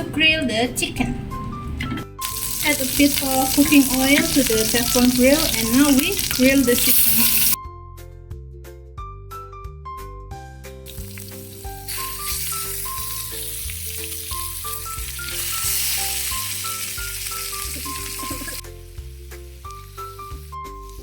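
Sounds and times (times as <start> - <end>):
background music with plucked melody: 0.0 - 6.8, 7.6 - 21.0
meat sizzling on grill pan: 2.2 - 7.6, 10.9 - 21.0.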